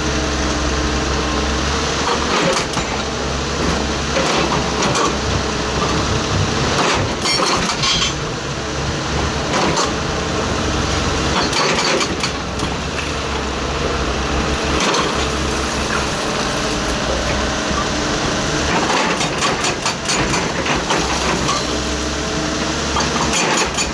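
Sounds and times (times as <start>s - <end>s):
excavator engine running: 0.0s - 23.9s
knocks and clatter: 3.7s - 8.4s.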